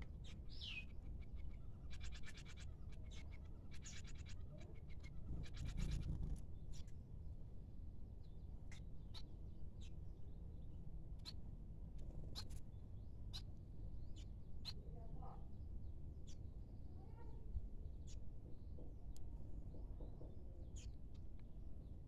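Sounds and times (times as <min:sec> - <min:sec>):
small birds chirping: 0:00.0 - 0:07.1, 0:08.2 - 0:22.0
steady low rumble: 0:05.0 - 0:07.6.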